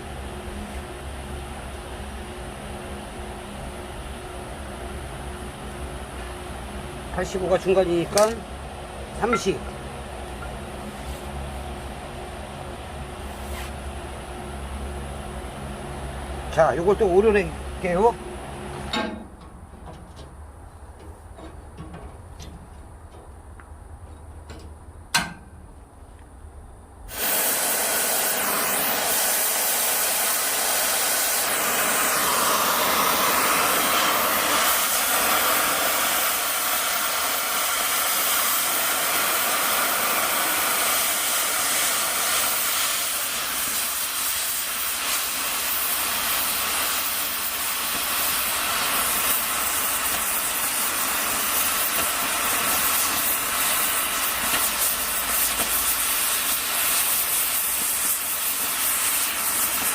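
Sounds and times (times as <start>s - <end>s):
cutting torch hissing: 27.1s - 59.9s.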